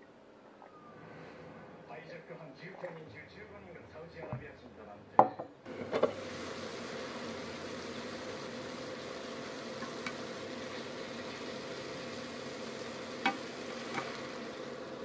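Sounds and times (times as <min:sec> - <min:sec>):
vegetables sizzling in a frying pan: 0:05.7 - 0:15.0.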